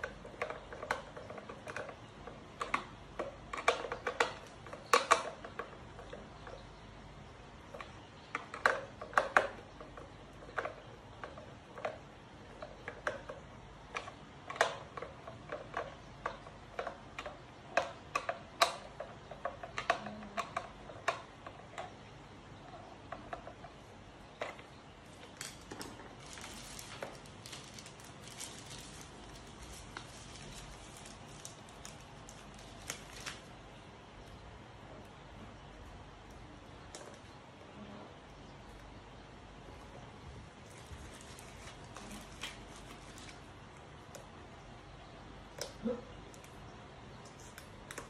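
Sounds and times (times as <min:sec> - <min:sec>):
soft rustling hiss: 0:21.5 - 0:45.1.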